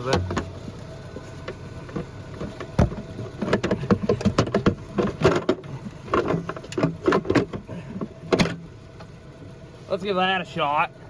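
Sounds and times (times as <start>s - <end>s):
plastic ducting clicks and clunks: 1.4s - 9.1s.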